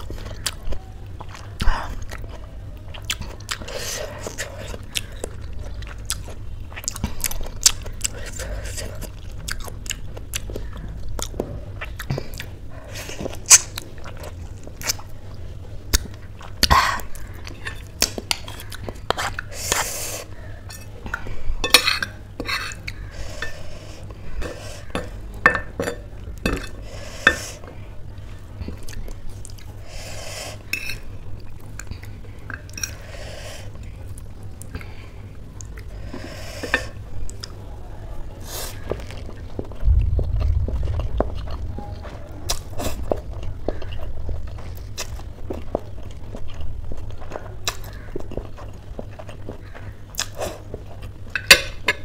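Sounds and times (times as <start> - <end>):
cutlery clinking on a plate: 21.6 - 22.8, 25.0 - 27.5
chewing noodles: 38.3 - 52.0.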